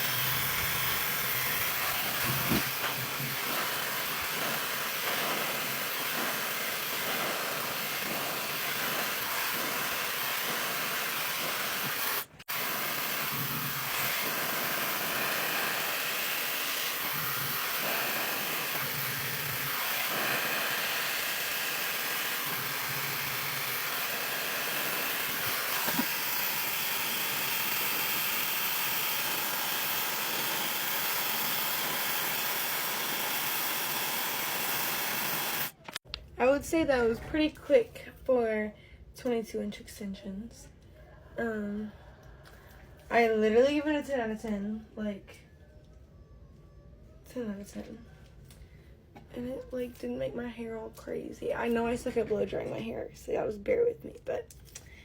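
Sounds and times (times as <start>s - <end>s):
hair dryer blowing: 0.0s - 35.8s.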